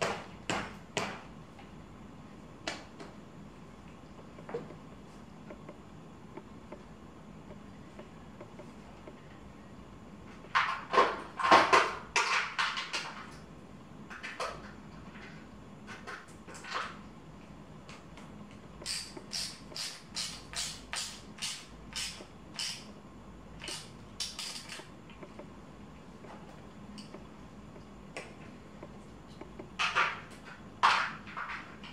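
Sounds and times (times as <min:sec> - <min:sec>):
tools knocking and clicking: 0:18.8 - 0:22.9, 0:23.6 - 0:25.5.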